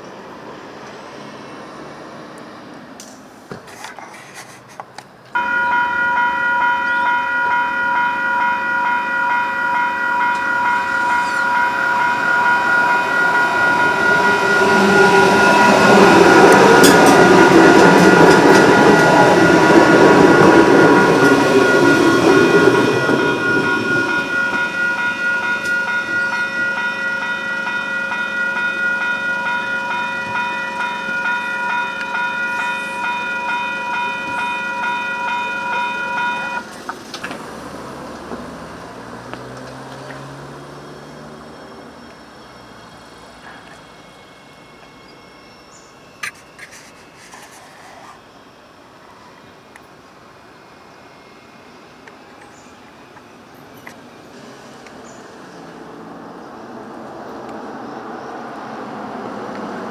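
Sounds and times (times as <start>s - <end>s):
electric train passing: 0.0s - 3.4s, 5.2s - 59.9s
level crossing bells ringing: 5.4s - 36.7s.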